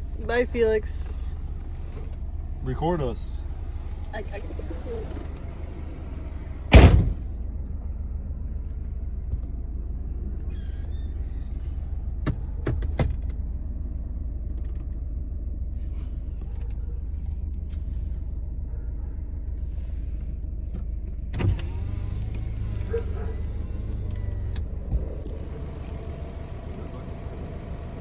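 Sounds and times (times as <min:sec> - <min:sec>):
car idling: 0:00.0 - 0:10.5, 0:11.3 - 0:28.0
power window motor running: 0:21.3 - 0:28.0.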